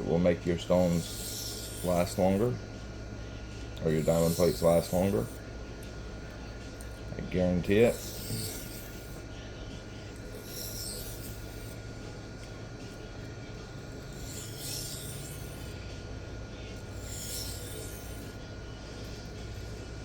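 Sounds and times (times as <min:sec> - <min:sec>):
steady low hum: 0:00.0 - 0:20.0
knife scraping sharpening plate: 0:00.9 - 0:02.2, 0:04.0 - 0:05.2, 0:07.9 - 0:09.2, 0:10.3 - 0:11.7, 0:14.0 - 0:15.7, 0:17.0 - 0:18.3.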